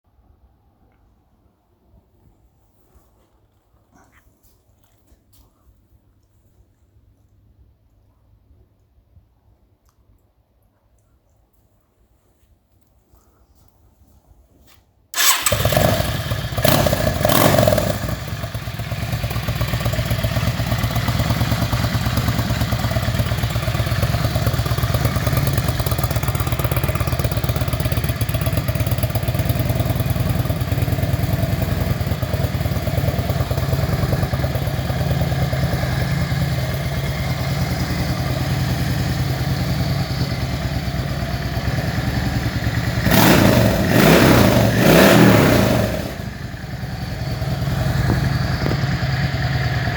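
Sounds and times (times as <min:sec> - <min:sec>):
motorcycle engine starting and idling: 0:15.1 - 0:49.9
motorcycle engine revving: 0:15.2 - 0:49.9.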